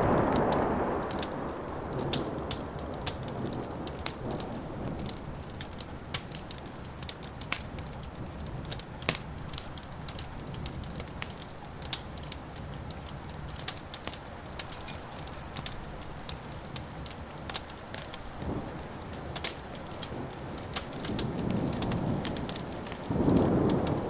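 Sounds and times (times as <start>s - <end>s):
thunder rumble: 0.0s - 6.9s, 18.3s - 24.0s
wood fire crackling and popping: 0.0s - 24.0s.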